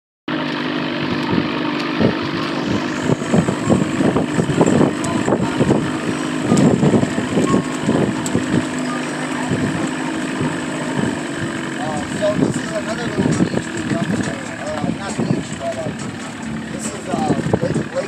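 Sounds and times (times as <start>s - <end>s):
engine humming with pulses: 0.3s - 18.0s.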